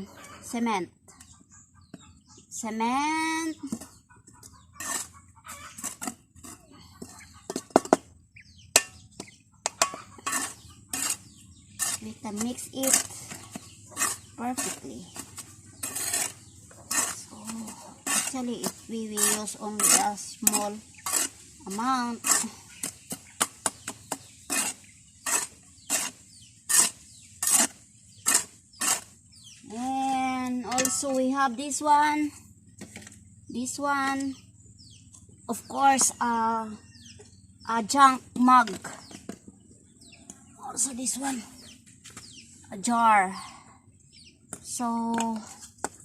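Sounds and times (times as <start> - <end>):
chickens clucking: 0.0 - 29.6
sand and cement scraping: 3.4 - 8.0, 8.8 - 32.2
sharp knocks and clatters: 5.9 - 8.1.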